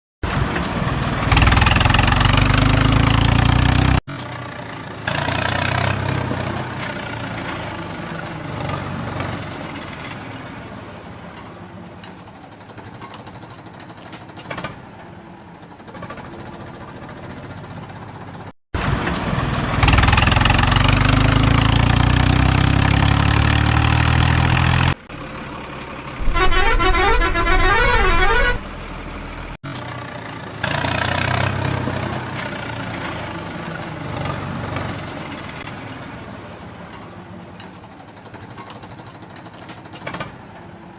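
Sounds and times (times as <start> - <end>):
running vehicle noise: 0.2 - 40.9
quick melodic horn notes: 26.2 - 28.7
truck horn honking: 26.2 - 28.8.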